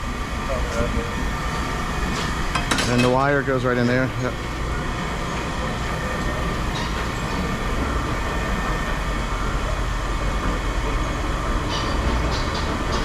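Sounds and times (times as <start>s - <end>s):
machinery engine rumble: 0.0s - 12.2s.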